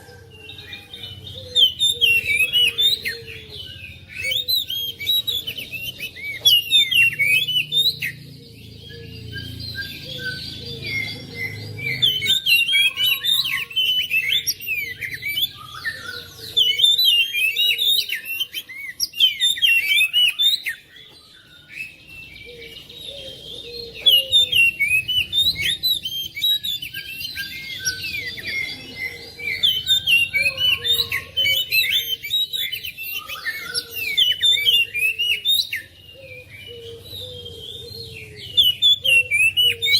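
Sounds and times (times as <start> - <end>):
songbird whistling and chirping: 0.0 - 39.9.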